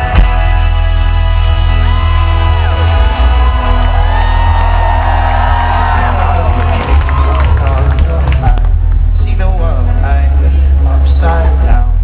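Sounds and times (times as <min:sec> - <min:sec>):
audience whooping and shouting: 0:00.0 - 0:08.8
live folk-rock band: 0:00.0 - 0:12.0.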